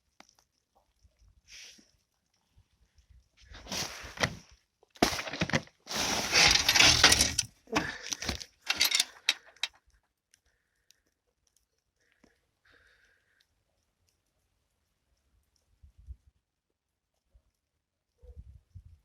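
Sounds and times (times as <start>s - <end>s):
hard objects clattering and scraping: 5.0s - 9.7s.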